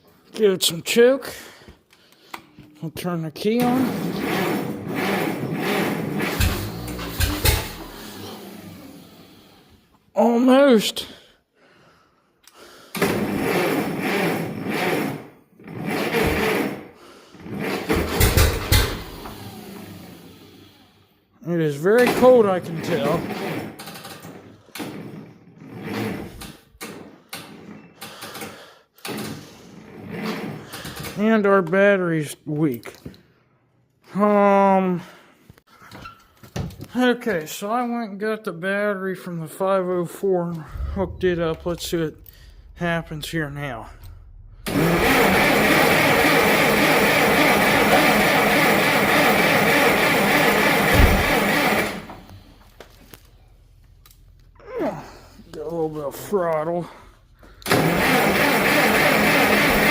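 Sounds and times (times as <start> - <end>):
tractor engine cranking: 3.6 - 8.7, 40.5 - 54.5, 55.6 - 59.9
low thump: 40.6 - 45.4.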